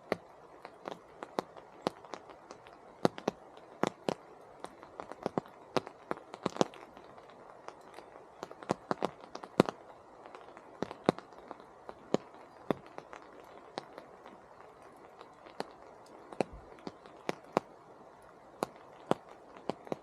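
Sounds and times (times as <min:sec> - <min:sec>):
rain pattering: 0:00.0 - 0:20.0.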